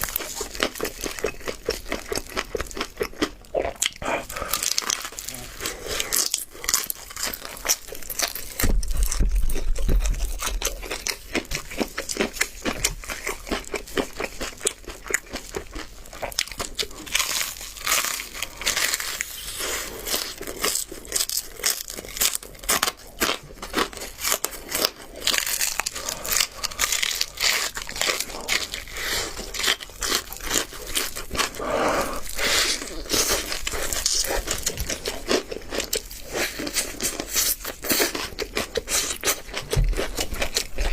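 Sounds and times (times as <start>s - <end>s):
chewing: 0.0s - 40.9s
crunching crispy chicken: 0.0s - 40.9s
meat tearing: 0.0s - 40.9s.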